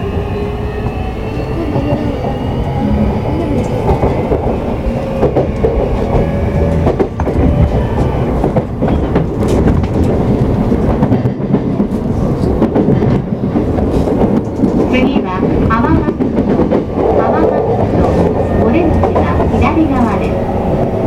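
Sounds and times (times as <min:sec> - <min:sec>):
train wheels rumbling on rail: 0:00.0 - 0:21.0
clacks over rail joints: 0:03.6 - 0:20.4.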